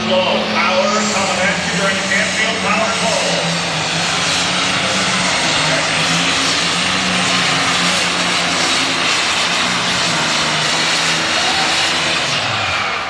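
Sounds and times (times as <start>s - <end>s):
diesel tractor engine running hard: 0.0s - 13.0s.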